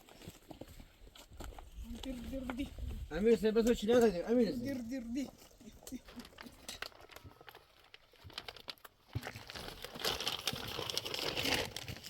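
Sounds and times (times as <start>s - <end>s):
material crinkling and rustling: 4.0s - 12.0s.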